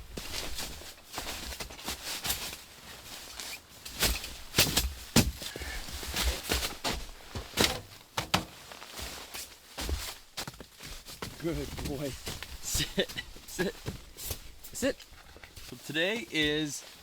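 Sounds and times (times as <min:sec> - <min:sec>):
rustling gear: 0:00.0 - 0:17.0
knocks and clunks: 0:07.5 - 0:08.6.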